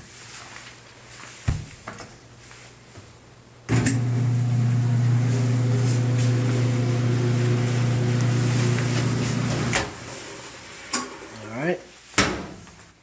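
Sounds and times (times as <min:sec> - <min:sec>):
dryer motor hum: 0:03.7 - 0:10.7
dryer drum turning: 0:03.7 - 0:11.3.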